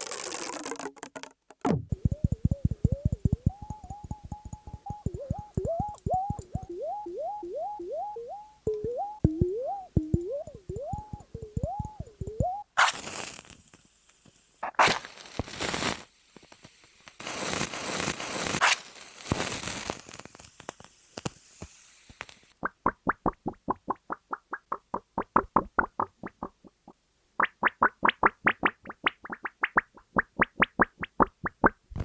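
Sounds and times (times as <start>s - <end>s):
crinkly rustling and scraping: 0.0s - 1.2s
short hollow plops: 0.6s - 12.7s.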